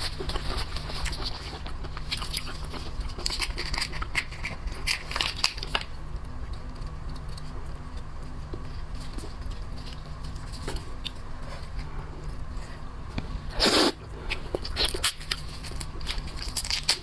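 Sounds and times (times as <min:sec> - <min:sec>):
low steady hum: 0:00.0 - 0:17.0
crab shell cracking: 0:02.0 - 0:07.4, 0:14.5 - 0:17.0.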